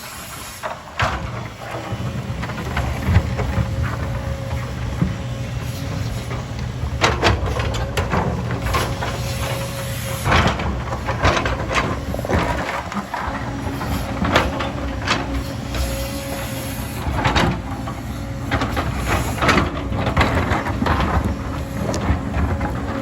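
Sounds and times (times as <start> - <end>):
diesel engine running: 0.2 - 23.0.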